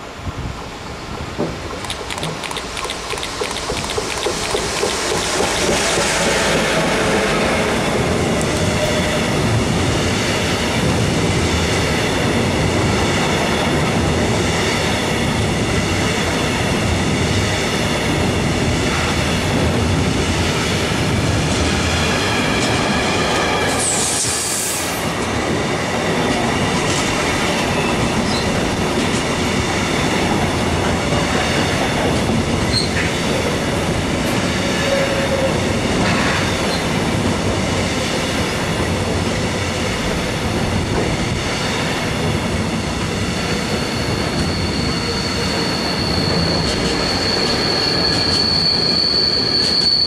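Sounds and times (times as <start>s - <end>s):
train wheels rolling: 1.1s - 12.2s, 17.4s - 50.0s
wheels clacking over rail joints: 1.4s - 6.3s.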